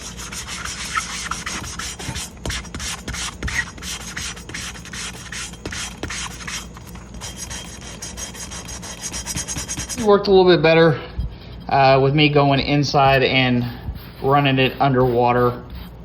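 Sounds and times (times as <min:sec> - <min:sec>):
sanding block scrubbing glass: 0:00.0 - 0:10.2.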